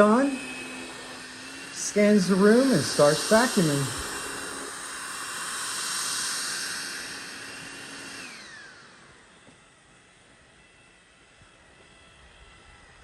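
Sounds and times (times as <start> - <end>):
robot vacuum motor whining: 0.0 - 9.8.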